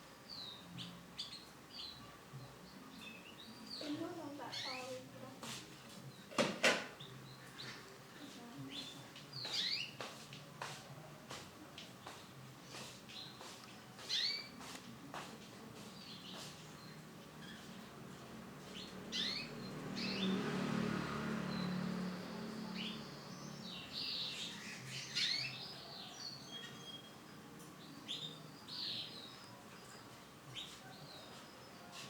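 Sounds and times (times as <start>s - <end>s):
low background noise: 0.0s - 32.0s
canary chirping and singing: 0.3s - 5.5s, 8.6s - 10.2s, 13.1s - 14.7s, 15.8s - 32.0s.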